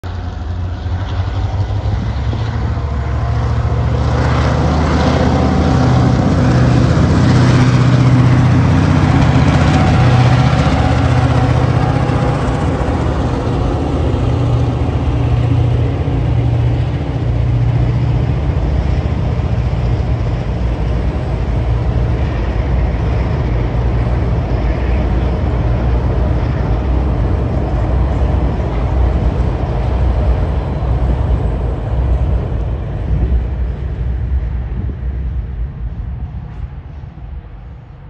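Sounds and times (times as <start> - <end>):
diesel locomotive engine hum: 0.0 - 38.0
train wagons rumbling over steel bridge: 0.0 - 38.0.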